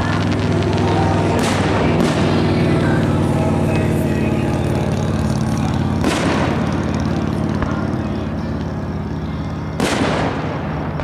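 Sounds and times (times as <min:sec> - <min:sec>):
firework shells bursting: 0:00.0 - 0:03.1, 0:04.9 - 0:09.2, 0:09.8 - 0:11.0
low mechanical hum: 0:00.0 - 0:11.0.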